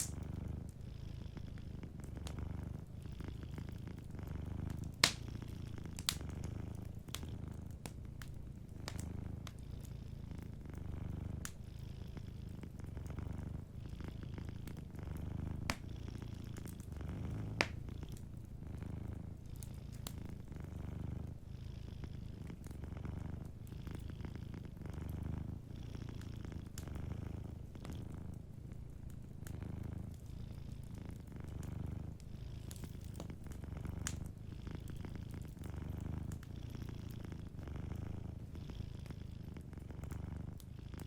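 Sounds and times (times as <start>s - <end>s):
wood fire crackling: 0.0s - 0.8s, 1.4s - 21.4s, 22.0s - 41.0s
cat purring: 0.0s - 41.0s.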